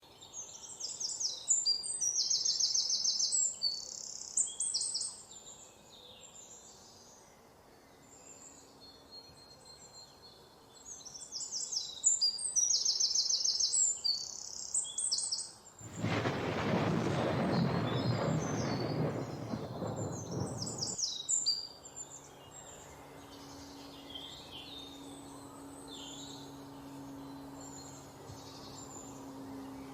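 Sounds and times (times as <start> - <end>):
songbird singing: 9.2 - 21.4.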